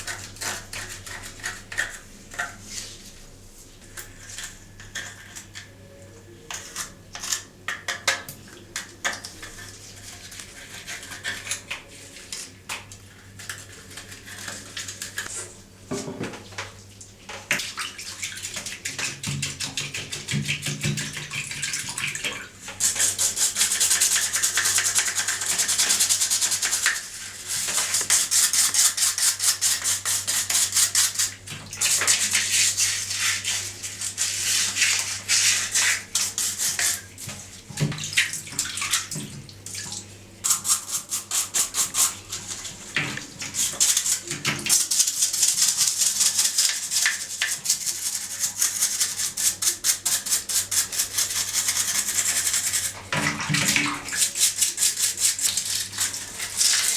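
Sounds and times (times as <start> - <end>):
stiff brush scrubbing: 40.5 - 56.9.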